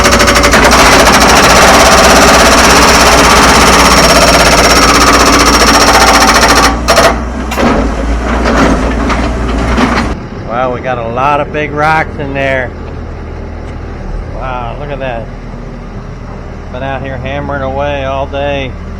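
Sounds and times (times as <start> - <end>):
rock breaker hammering rock: 0.0 - 10.2.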